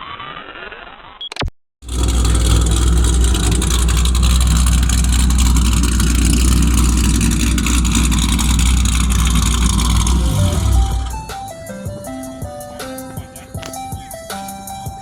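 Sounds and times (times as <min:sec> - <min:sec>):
car engine running: 0:01.8 - 0:12.0.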